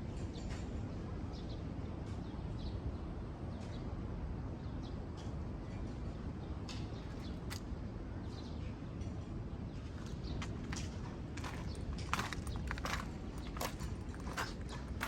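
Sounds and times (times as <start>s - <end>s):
low outdoor rumble: 9.6s - 15.0s
small birds chirping: 9.8s - 15.0s.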